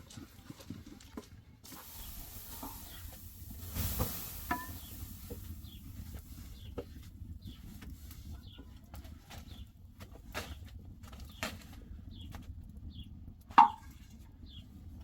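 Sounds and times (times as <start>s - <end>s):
small bird chirping: 1.7s - 7.7s
low rumble: 1.8s - 7.7s.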